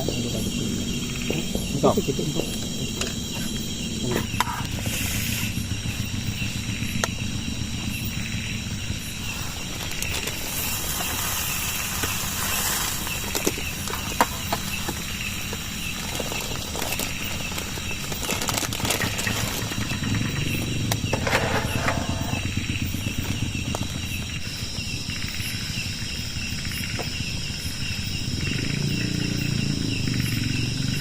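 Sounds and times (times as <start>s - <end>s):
steady rain falling: 9.7s - 18.4s.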